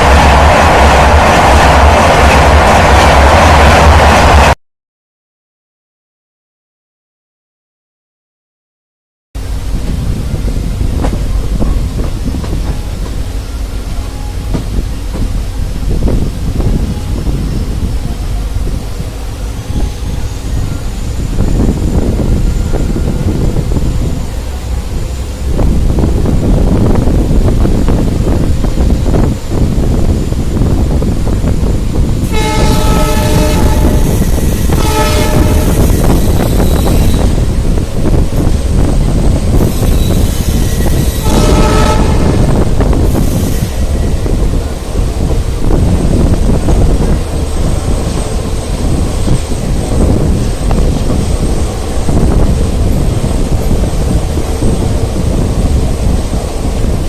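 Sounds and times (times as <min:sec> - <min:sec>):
moving train rumble: 0:00.0 - 0:04.6, 0:09.4 - 0:57.0
wind noise: 0:09.4 - 0:57.0
locomotive air horn: 0:32.2 - 0:37.4, 0:39.8 - 0:42.7.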